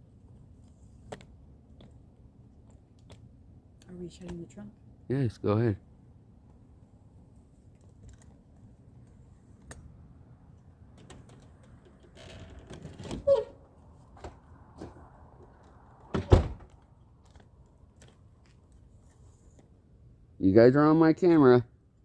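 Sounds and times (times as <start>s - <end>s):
faint clicks and handling noises: 0.2s - 4.5s, 7.4s - 13.2s, 14.2s - 19.9s
car trunk lid slamming shut: 16.2s - 16.6s.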